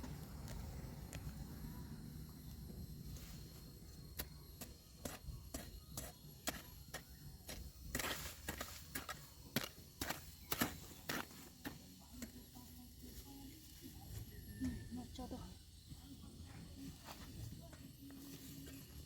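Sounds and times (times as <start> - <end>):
garden tool chopping soil: 4.1 - 12.4.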